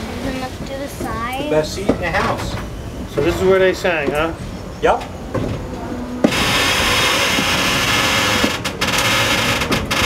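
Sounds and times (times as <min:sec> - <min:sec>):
train wheel rail and wind rush: 0:00.0 - 0:10.0
rhythmic wheel clatter on track: 0:06.2 - 0:10.0.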